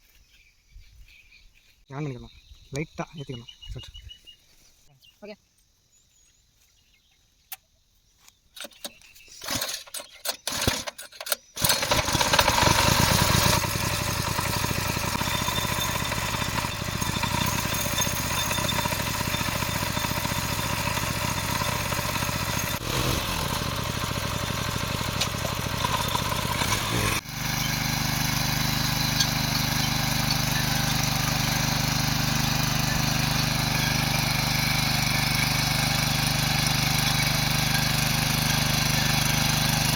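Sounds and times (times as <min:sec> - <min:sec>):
engine sputtering on pull-start: 0:08.6 - 0:39.9
small petrol engine running: 0:09.4 - 0:39.9.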